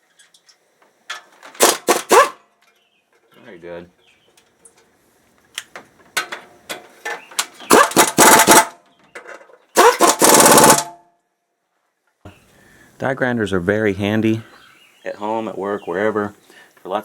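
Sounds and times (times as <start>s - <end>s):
air impact wrench hammering: 1.6s - 2.4s, 7.7s - 8.8s, 9.8s - 11.0s.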